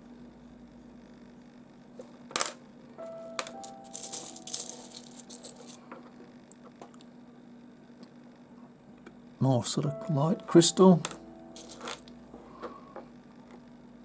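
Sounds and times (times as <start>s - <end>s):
stones clinking and rattling: 3.8s - 5.8s, 11.6s - 12.0s.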